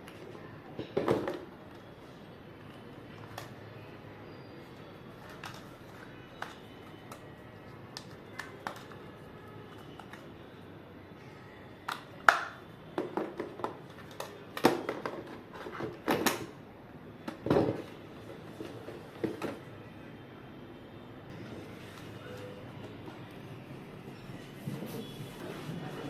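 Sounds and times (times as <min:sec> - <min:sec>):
plastic parts clicking and knocking: 0:06.4 - 0:07.2, 0:08.0 - 0:09.0, 0:11.8 - 0:16.6.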